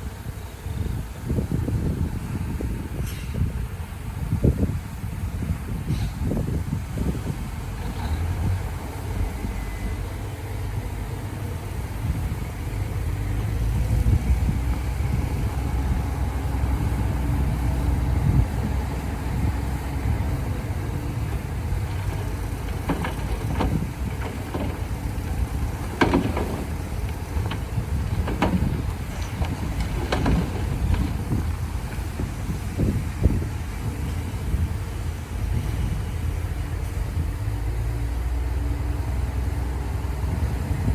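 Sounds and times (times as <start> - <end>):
bulldozer diesel engine rumbling: 0.0 - 40.9.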